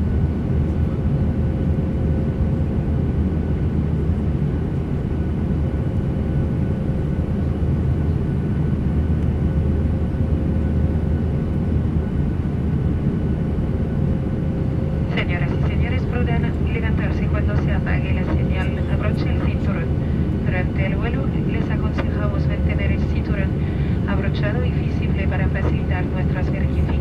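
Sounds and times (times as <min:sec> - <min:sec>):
airliner cabin rumble: 0:00.0 - 0:27.0
faint steady hum: 0:14.6 - 0:27.0.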